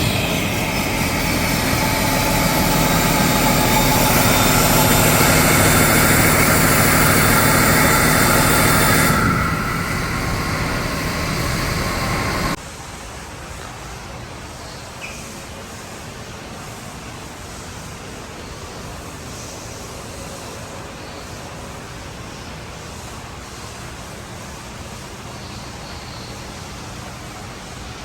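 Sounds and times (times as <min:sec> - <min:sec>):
diesel engine running: 0:00.0 - 0:12.6
high turbo whine: 0:00.0 - 0:12.6
steady hiss: 0:00.0 - 0:28.0.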